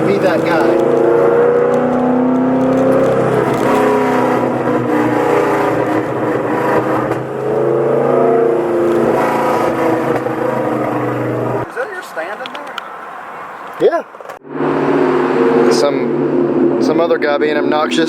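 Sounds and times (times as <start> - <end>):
car engine revving from inside cabin: 0.0 - 11.6.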